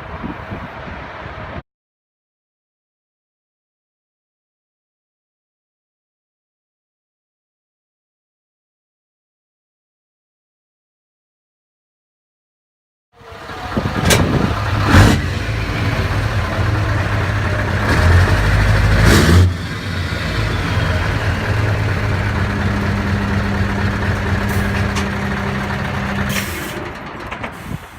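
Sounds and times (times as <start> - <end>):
truck engine running loud: 13.2 - 27.9
exhaust cracks: 13.8 - 27.6.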